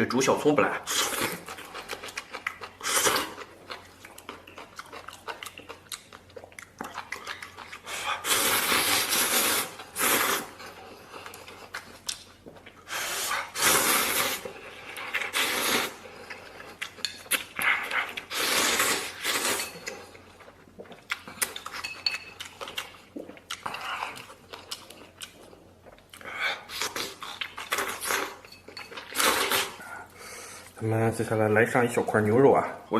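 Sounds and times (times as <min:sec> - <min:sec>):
chewing: 0:00.9 - 0:13.5, 0:14.2 - 0:30.8
person slurping noodles: 0:07.8 - 0:10.7, 0:12.8 - 0:16.1, 0:17.6 - 0:19.7, 0:29.1 - 0:29.9
chopsticks clinking on bowl: 0:21.5 - 0:22.5.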